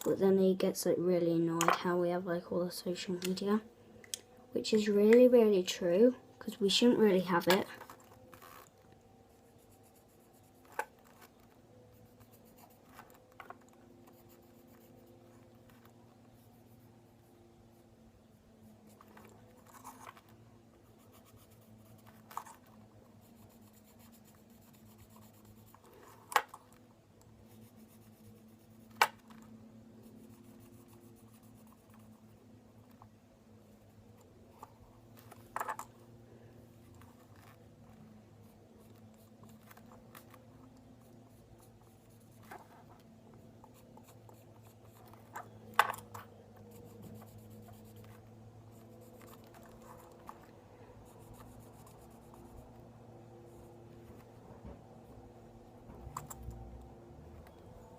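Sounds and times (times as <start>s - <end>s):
low steady hum: 0.0s - 57.9s
marker pen scratching: 9.3s - 17.8s, 18.6s - 26.8s, 27.4s - 33.1s, 36.7s - 52.8s.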